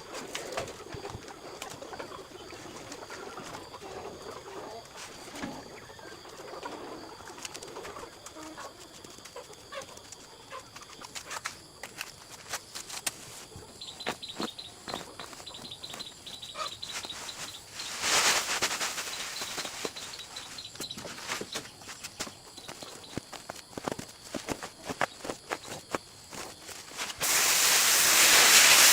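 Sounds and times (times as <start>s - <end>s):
birds calling: 13.7s - 23.4s
high thin chirping: 13.8s - 23.2s
loud rustle: 16.8s - 22.4s.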